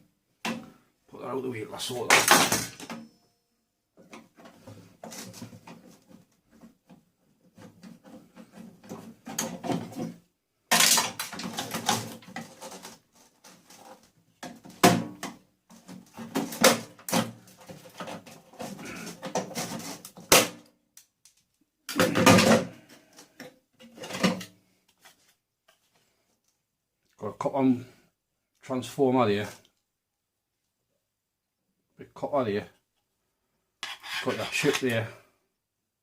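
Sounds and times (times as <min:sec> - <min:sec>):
metal and plastic parts clattering: 0:02.0 - 0:03.1, 0:04.0 - 0:06.7, 0:07.5 - 0:20.6, 0:21.9 - 0:25.2.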